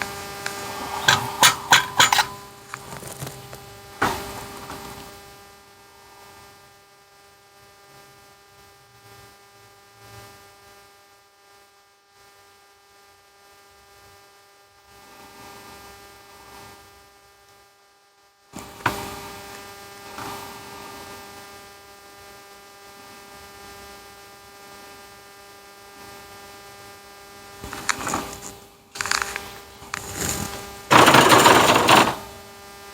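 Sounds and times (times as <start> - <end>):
electrical hum: 0.0 - 5.2, 27.4 - 32.8.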